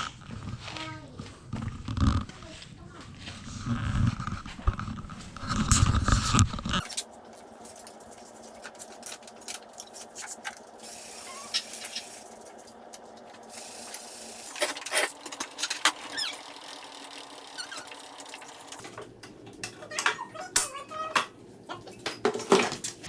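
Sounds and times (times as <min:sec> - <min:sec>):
short squeaks: 0:15.8 - 0:16.6, 0:17.5 - 0:18.7.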